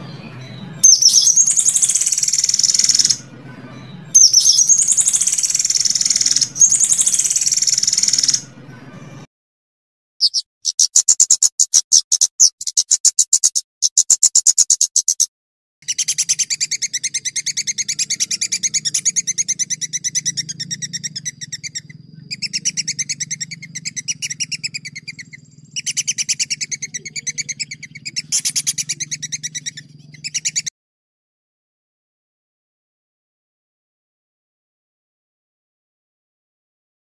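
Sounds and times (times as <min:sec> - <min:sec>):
songbird singing rapid high notes: 0:00.0 - 0:09.3, 0:10.2 - 0:30.7
faint low hum: 0:15.9 - 0:30.7.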